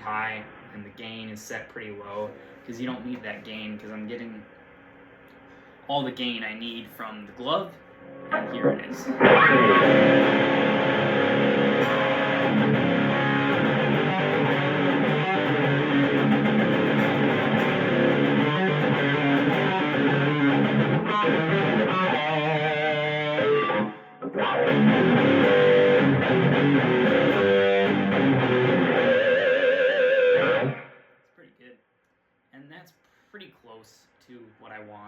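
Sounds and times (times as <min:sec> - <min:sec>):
distorted electric guitar riffing: 0:08.0 - 0:31.0.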